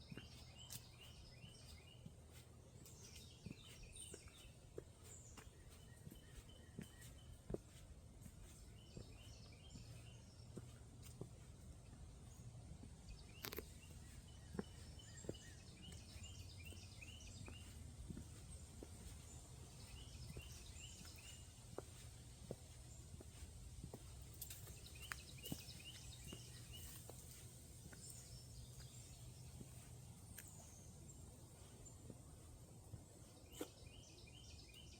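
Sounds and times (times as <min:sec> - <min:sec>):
bird chirping: 0:00.0 - 0:34.9.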